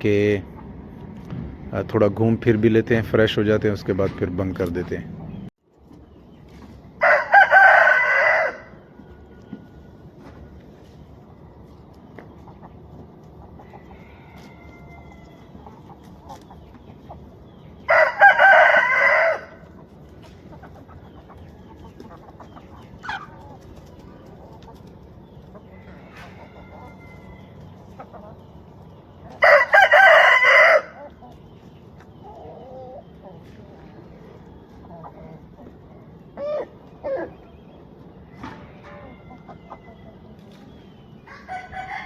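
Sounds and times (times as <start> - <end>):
rooster crowing: 7.0 - 10.0, 13.7 - 15.6, 17.8 - 19.6, 25.7 - 27.5, 29.4 - 31.0, 41.3 - 42.0
hens clucking softly: 9.2 - 17.9, 19.5 - 42.0.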